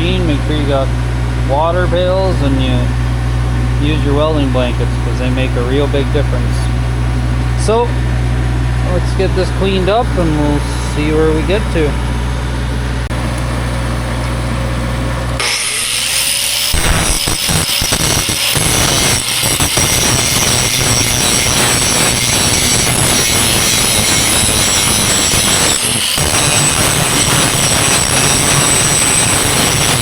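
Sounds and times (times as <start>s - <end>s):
angle grinder grinding steel: 3.8s - 7.0s, 15.4s - 30.0s.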